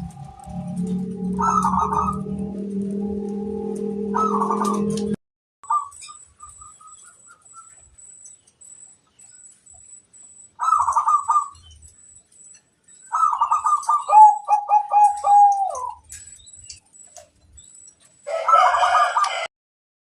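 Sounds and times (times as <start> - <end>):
dove cooing: 0.0 - 5.8, 10.6 - 11.6, 13.1 - 16.1.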